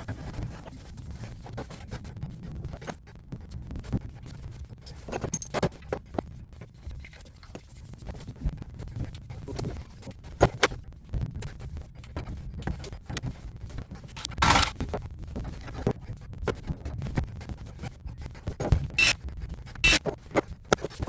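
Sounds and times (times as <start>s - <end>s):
tools clicking and scraping on pipe: 14.1s - 14.8s, 18.6s - 19.2s, 19.8s - 21.0s.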